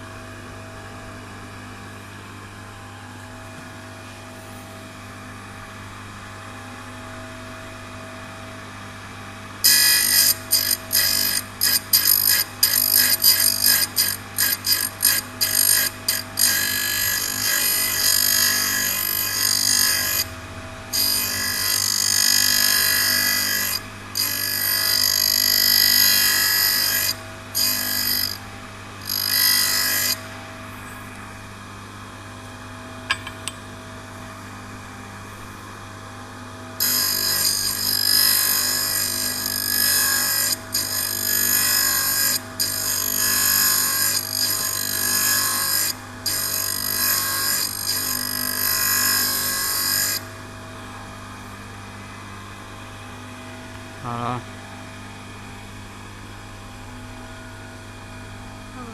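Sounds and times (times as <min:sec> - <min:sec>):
grinder motor running: 0:09.6 - 0:31.2, 0:36.8 - 0:50.2.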